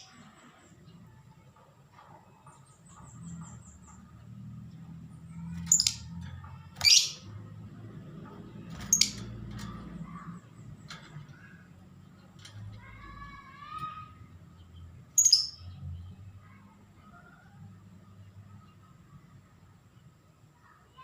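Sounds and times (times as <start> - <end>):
lovebird shrill calls: 15.2 - 15.6.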